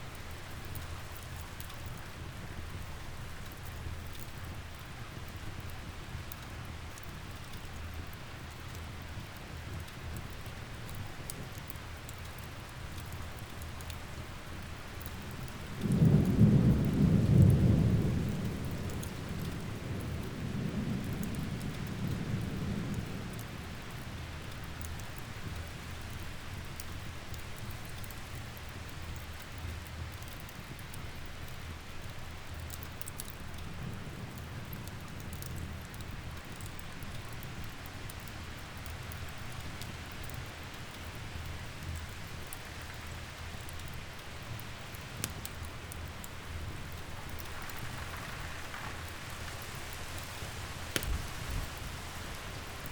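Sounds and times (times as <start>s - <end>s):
steady rain falling: 0.0s - 52.9s
thunder rumbling: 15.2s - 23.9s, 46.0s - 52.9s.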